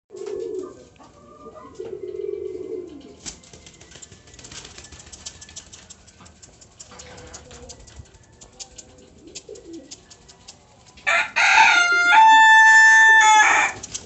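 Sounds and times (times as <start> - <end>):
pigeons cooing: 0.1 - 11.0, 11.8 - 14.0
light clicks and scratches: 2.9 - 11.1, 13.7 - 14.0.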